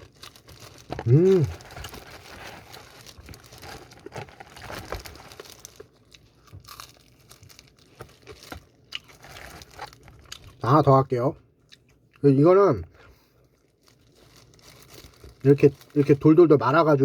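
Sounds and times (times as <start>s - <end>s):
fried chicken crunching: 0.0s - 10.7s.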